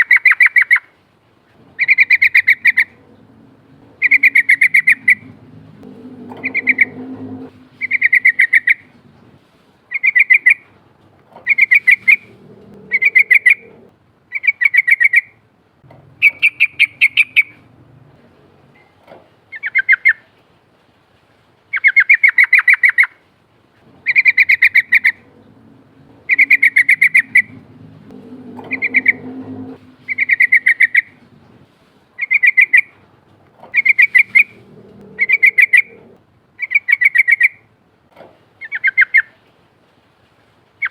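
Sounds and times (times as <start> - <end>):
bulbul singing: 1.8 - 8.9, 24.1 - 31.3.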